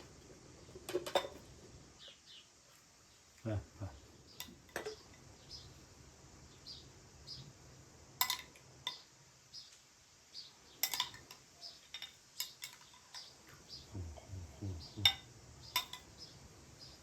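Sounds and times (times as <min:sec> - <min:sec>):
small bird chirping: 0:01.9 - 0:07.6, 0:08.8 - 0:17.0
sharp clinks of cutlery: 0:10.8 - 0:13.3, 0:15.0 - 0:16.1.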